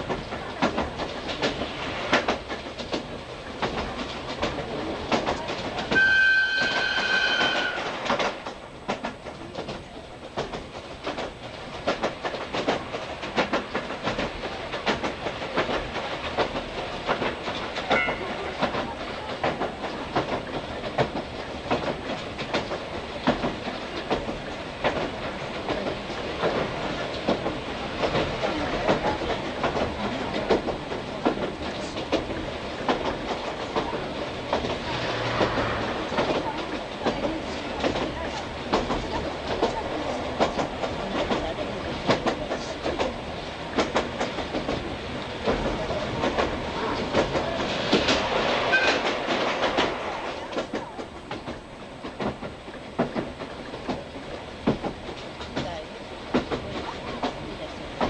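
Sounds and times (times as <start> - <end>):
train running rumble: 0.0 - 58.0
wheels clicking over rail joints: 0.0 - 58.0
faint train toot: 5.8 - 8.1, 17.9 - 18.6, 48.7 - 49.2
locomotive whistle: 5.9 - 7.9, 48.7 - 49.0.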